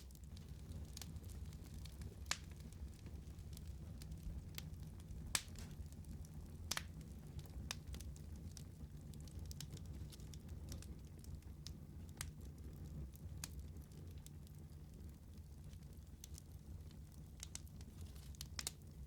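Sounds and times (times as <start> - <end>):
fire crackles and pops: 0.0 - 19.0
fire flames rumbling: 0.0 - 19.0.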